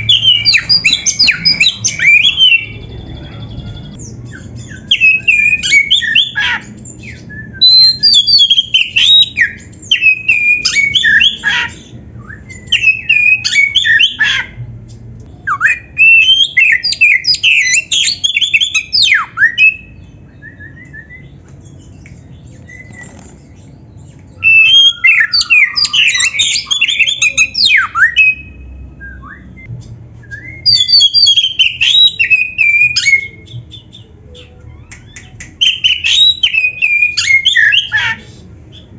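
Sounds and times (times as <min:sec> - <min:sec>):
bird singing whistled phrases: 0:00.0 - 0:14.4, 0:24.3 - 0:38.9.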